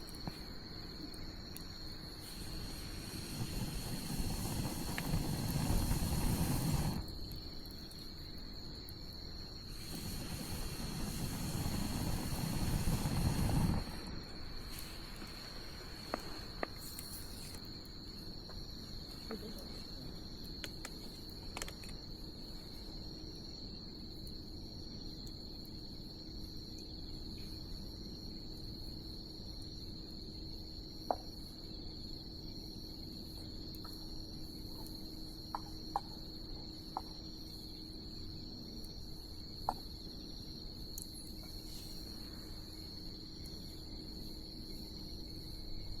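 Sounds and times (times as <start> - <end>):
crickets chirring: 0.0 - 46.0
bonfire rushing and crackling: 1.5 - 7.9, 9.6 - 17.7.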